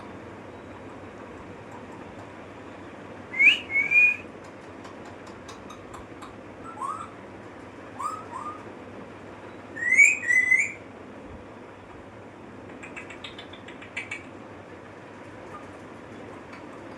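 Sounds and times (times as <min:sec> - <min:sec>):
parrot rising whistles: 0:03.3 - 0:04.3, 0:06.6 - 0:07.1, 0:09.8 - 0:10.8
parrot chirps: 0:06.6 - 0:07.2, 0:08.0 - 0:08.6, 0:09.8 - 0:10.8, 0:12.7 - 0:14.4.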